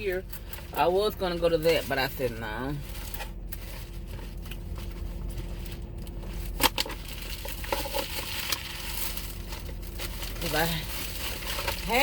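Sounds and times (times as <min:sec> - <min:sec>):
food wrapping rustling: 0:00.0 - 0:12.0
steady low hum: 0:00.0 - 0:12.0.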